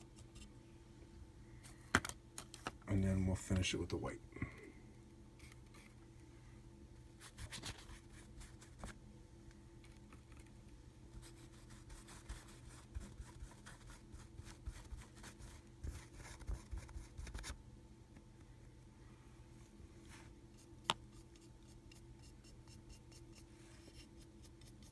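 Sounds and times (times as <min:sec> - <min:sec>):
steady low hum: 0:00.0 - 0:24.9
paintbrush scratching plaster wall: 0:11.2 - 0:17.5, 0:20.5 - 0:24.9.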